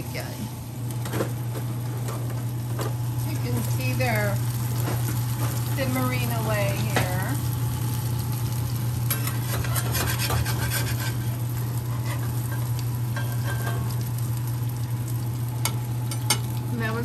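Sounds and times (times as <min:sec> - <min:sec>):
food sizzling in oil: 0:00.0 - 0:17.0
steady low hum: 0:00.0 - 0:17.0
metal spatula scraping pan: 0:09.1 - 0:12.3.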